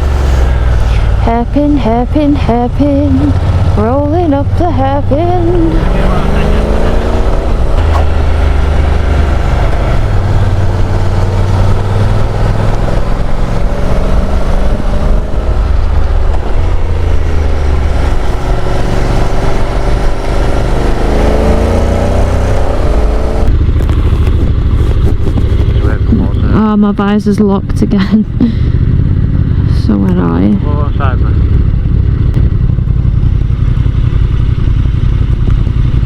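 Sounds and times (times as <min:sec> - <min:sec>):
wind noise on microphone: 0:00.0 - 0:30.6
motorcycle engine running: 0:00.0 - 0:36.0.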